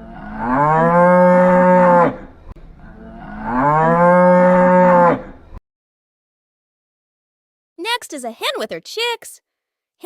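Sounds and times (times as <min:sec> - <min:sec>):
cow mooing: 0:00.0 - 0:05.6.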